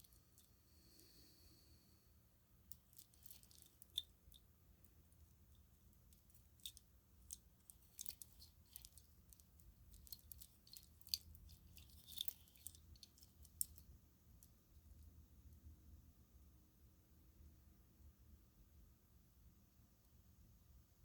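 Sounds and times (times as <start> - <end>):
string lights clicking and rubbing: 2.7 - 4.1, 5.5 - 13.9.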